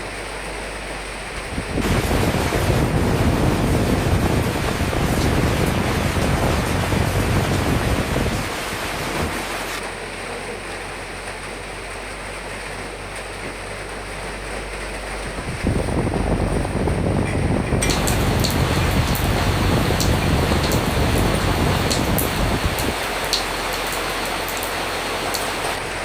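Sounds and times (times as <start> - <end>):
rain: 0.0 - 26.0
wind rushing: 1.5 - 9.8, 15.4 - 26.0.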